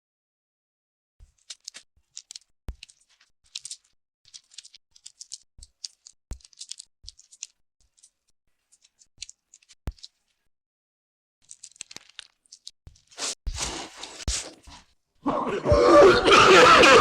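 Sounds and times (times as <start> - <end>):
scratchy rustling strokes: 13.0 - 14.9.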